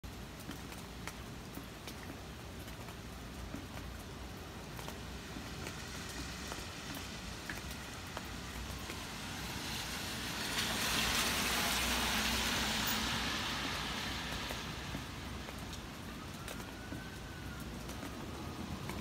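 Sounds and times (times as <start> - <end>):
rain: 0.0 - 19.0
car tyres hissing on wet road: 5.0 - 16.0.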